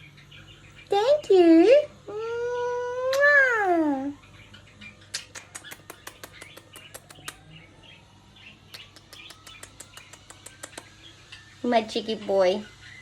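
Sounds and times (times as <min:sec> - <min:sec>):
parrot chirping softly: 0:00.0 - 0:13.0
sharp clicks: 0:05.1 - 0:07.6, 0:08.7 - 0:11.0.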